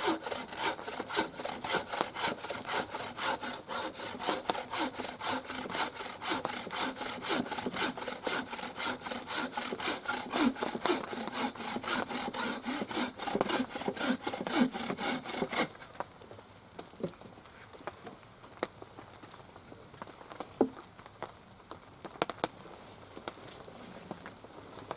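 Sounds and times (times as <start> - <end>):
hand saw cutting wood: 0.0 - 15.8.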